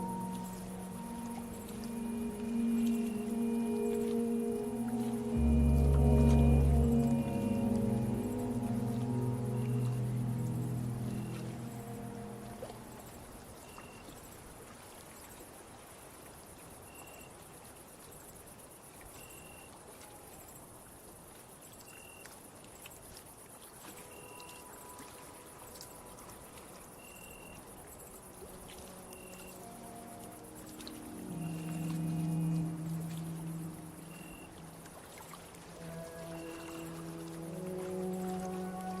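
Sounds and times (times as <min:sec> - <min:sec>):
high insect trill: 0:00.0 - 0:13.2, 0:26.9 - 0:39.0
cricket chirp: 0:00.0 - 0:14.3, 0:16.5 - 0:20.8, 0:21.4 - 0:39.0.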